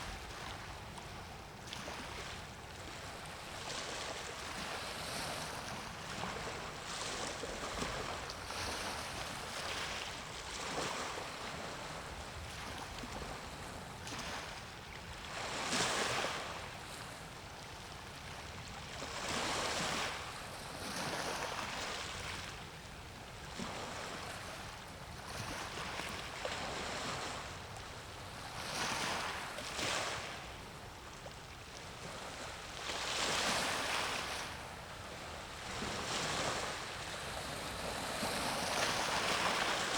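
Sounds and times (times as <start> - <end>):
waves washing in: 32.8 - 39.9.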